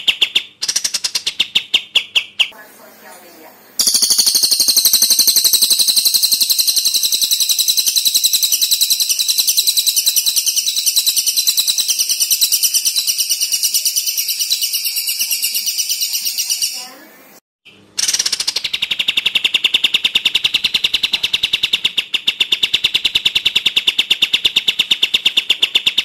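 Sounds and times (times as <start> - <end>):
songbird rattling call: 3.8 - 16.9.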